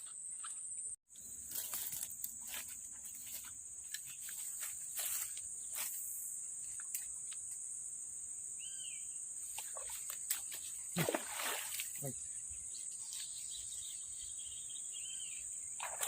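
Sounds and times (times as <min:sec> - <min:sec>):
insects droning: 0:00.0 - 0:16.0
bird chirp: 0:08.5 - 0:10.9, 0:12.0 - 0:16.0.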